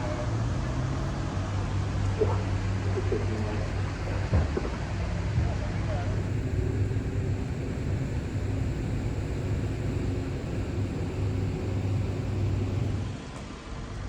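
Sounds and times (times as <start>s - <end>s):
ferry diesel engine drone: 6.0s - 13.3s.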